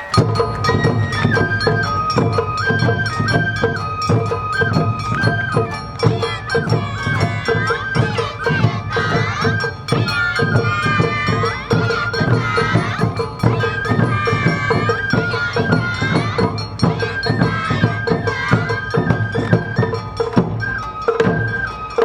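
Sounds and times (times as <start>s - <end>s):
bamboo flute melody: 0.0s - 22.0s
drum strokes: 0.0s - 22.0s
ringing metal bell: 0.0s - 22.0s.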